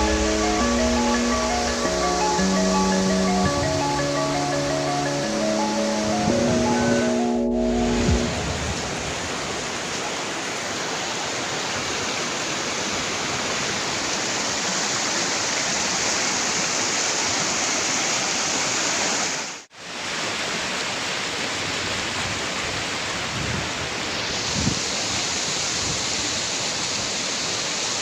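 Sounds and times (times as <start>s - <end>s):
waterfall roaring: 0.0s - 7.3s.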